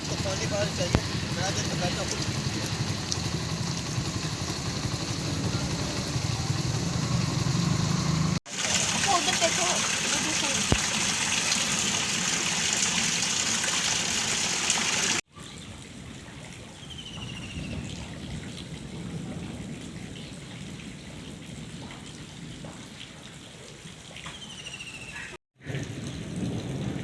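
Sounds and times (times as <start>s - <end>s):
heavy rain hissing: 0.0s - 15.2s
water trickling: 8.5s - 15.2s.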